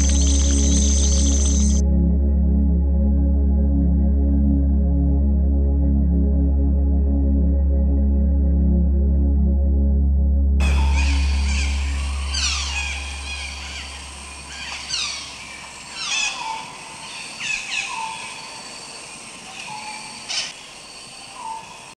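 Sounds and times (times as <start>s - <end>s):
birds calling: 0.0s - 1.8s, 10.6s - 21.8s
steady high hiss: 0.0s - 1.8s, 10.6s - 17.5s
low music drone: 0.0s - 16.3s.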